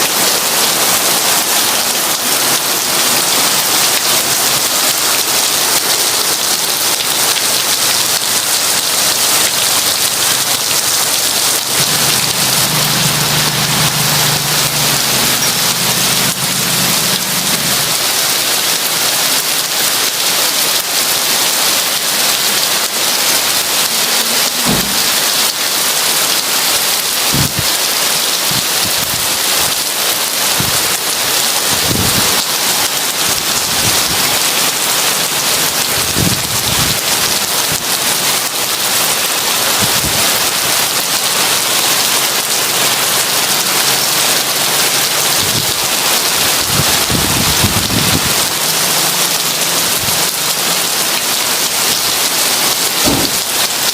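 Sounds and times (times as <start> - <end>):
heavy rain falling: 0.0 - 53.9
thunder rumbling: 10.8 - 18.3, 27.3 - 27.7.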